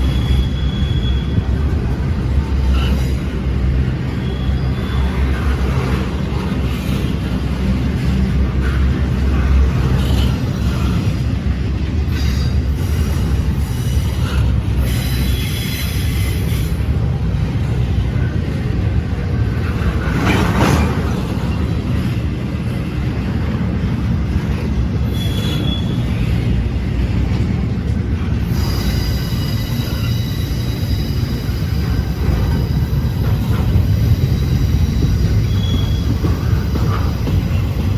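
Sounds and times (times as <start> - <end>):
high-pitched wheel squeals: 0.0 - 1.6, 4.1 - 5.6, 25.0 - 26.4, 28.4 - 37.9
train wheels rumbling on rails: 0.0 - 37.9.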